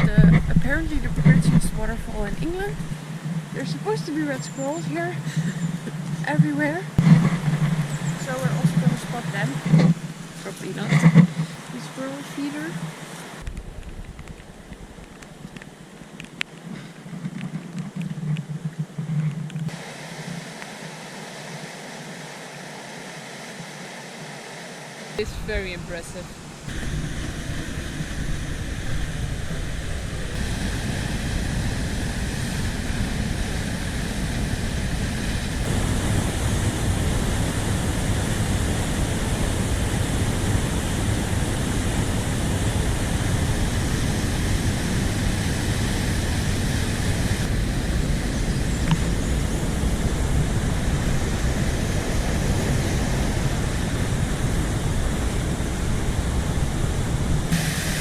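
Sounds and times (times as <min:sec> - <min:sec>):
waterfall rushing: 0:00.0 - 0:13.5, 0:19.7 - 0:58.0.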